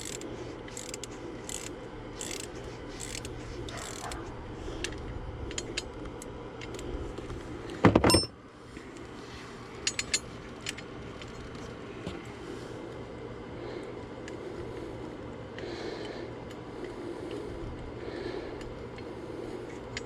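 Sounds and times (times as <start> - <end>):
ratchet wrench clicking: 0.0 - 4.2, 9.8 - 11.6.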